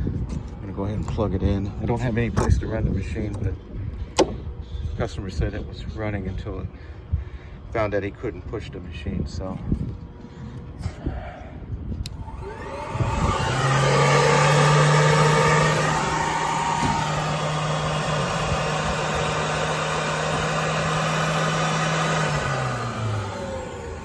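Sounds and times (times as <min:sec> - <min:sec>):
floor cleaning machine motor whine: 0:12.1 - 0:24.0.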